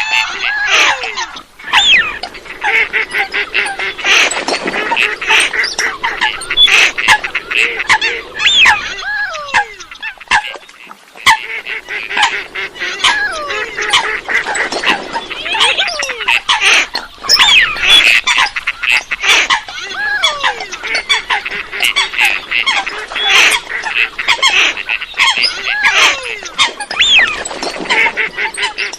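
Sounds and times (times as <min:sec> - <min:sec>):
waterbirds honking and squawking: 0:00.0 - 0:28.9.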